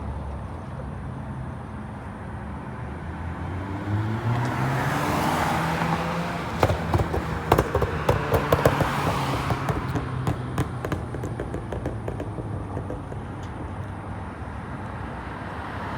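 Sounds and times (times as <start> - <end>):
car engine idling and revving: 1.0 - 15.9.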